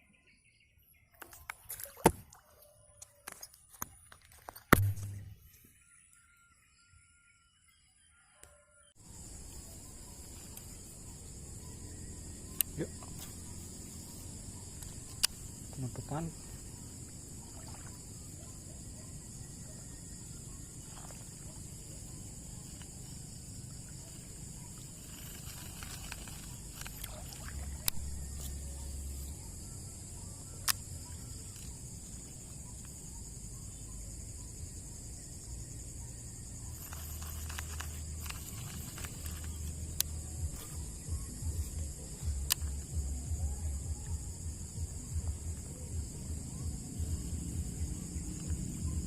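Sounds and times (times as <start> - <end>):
high-pitched insect drone: 9.0 - 49.0
sharp clicks: 36.8 - 40.8, 42.2 - 42.9.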